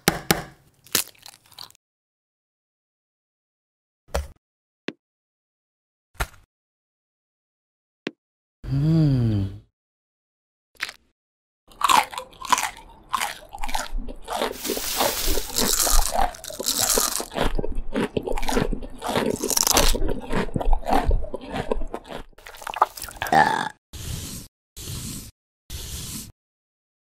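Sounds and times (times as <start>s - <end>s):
crunching and chewing: 0.8s - 1.8s, 11.7s - 23.3s.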